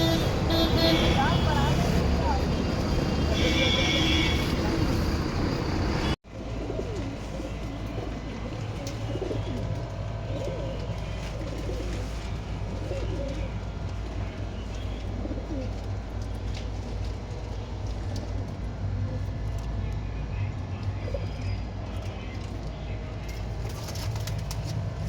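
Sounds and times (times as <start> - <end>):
street noise: 0.0 - 25.0
pigeons cooing: 5.2 - 14.2, 15.0 - 16.3.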